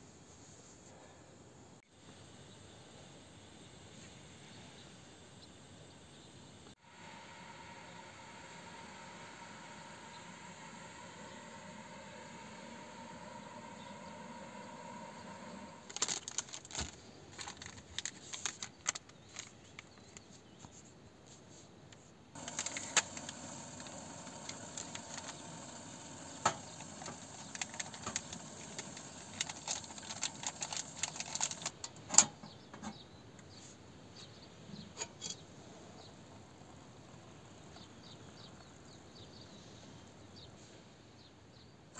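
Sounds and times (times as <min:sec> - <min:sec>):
soft steady hiss: 0:00.0 - 0:31.9
small hard objects clicking: 0:22.4 - 0:31.8.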